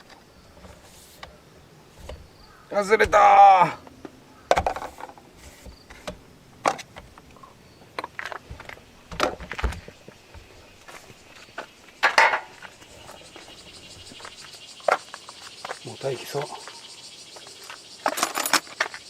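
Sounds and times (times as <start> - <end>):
metal tools clinking: 18.0 - 18.8.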